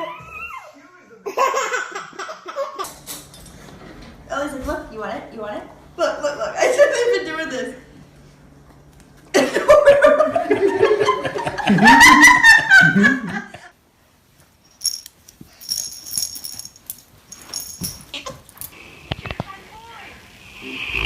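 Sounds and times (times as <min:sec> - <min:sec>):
baby laughing: 0:00.1 - 0:02.9.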